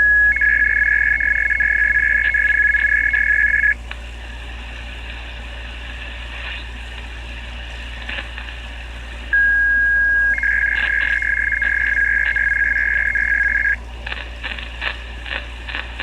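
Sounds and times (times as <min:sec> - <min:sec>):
two-pitch electronic tone: 0:00.0 - 0:03.8, 0:09.4 - 0:13.8
low steady hum: 0:00.0 - 0:16.0.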